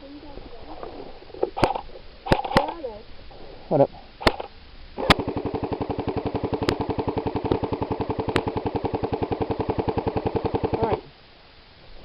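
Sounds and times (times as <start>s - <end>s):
sharp cracks: 1.5s - 2.9s, 4.2s - 11.1s
airsoft gun full-auto burst: 4.2s - 11.0s.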